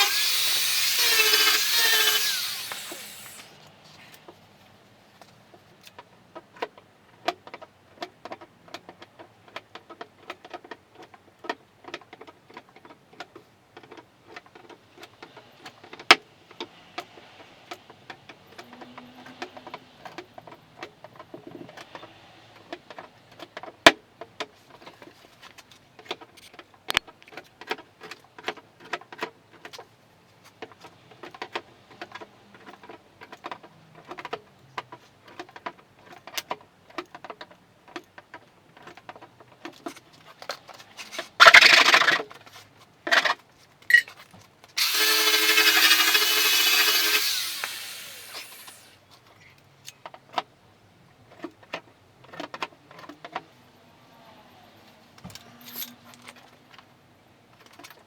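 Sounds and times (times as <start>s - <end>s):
power tool running: 0.0s - 3.6s, 44.8s - 49.0s.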